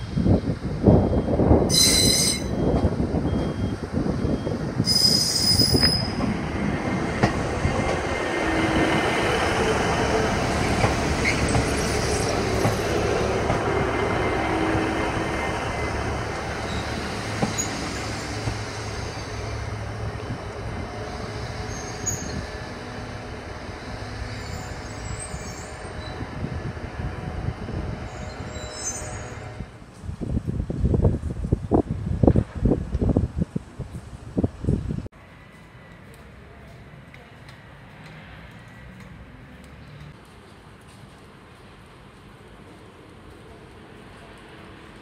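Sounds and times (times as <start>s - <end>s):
train wheels squealing: 1.1s - 3.8s, 4.4s - 6.3s, 10.7s - 12.9s, 15.7s - 19.5s, 21.3s - 22.6s, 24.3s - 26.3s, 28.0s - 29.6s.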